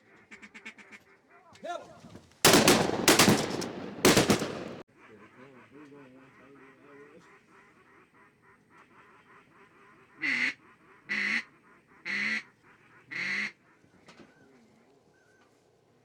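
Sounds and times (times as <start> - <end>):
loud duck quacks: 0.1 - 1.4, 5.0 - 13.8
ducks chattering: 2.5 - 5.7.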